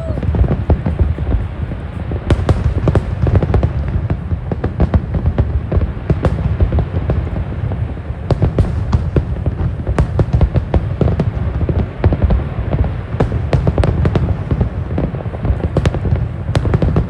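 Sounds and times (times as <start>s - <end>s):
continuous low rumble: 0.0s - 17.0s
fireworks bangs and crackles: 0.0s - 17.0s.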